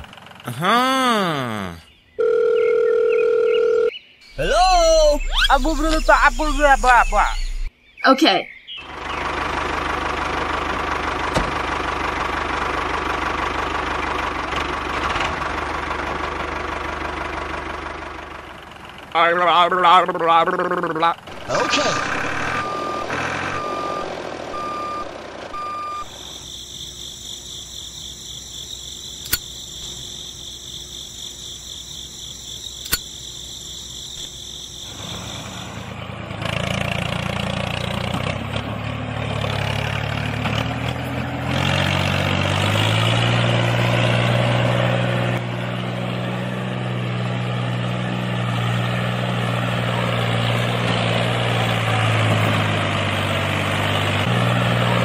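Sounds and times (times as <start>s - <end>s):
high-pitched whine: 4.6s - 7.7s
reversing beeper beeps: 22.2s - 26.1s
sharp clicks: 29.2s - 29.6s, 32.8s - 33.1s.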